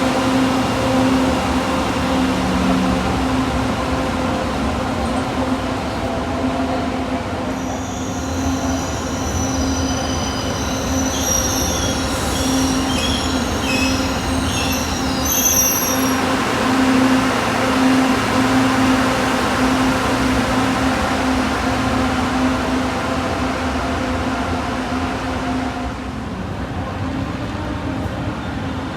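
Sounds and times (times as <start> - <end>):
train hum: 0.0 - 28.9
train wheels squealing on rail: 7.4 - 17.1.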